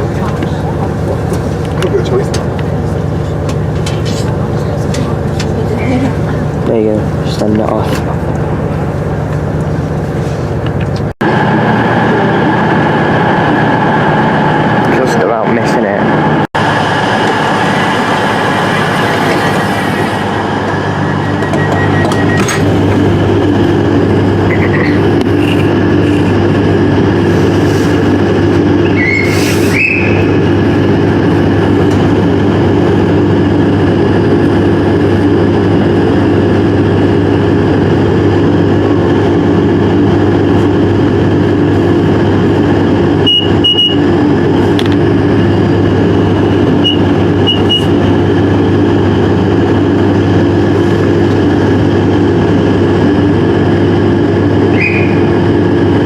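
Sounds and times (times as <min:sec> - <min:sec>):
train running drone: 0:00.0 - 0:56.0
short high beeps: 0:21.1 - 0:22.6.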